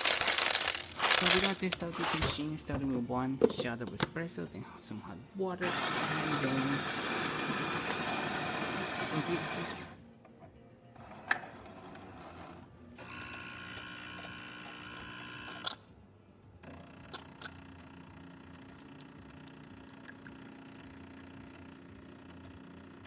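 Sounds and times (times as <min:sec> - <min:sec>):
coffee grinder running: 0:00.0 - 0:02.4, 0:05.6 - 0:10.0, 0:11.7 - 0:15.8, 0:16.8 - 0:23.0
pump humming: 0:05.6 - 0:10.0, 0:13.0 - 0:15.8.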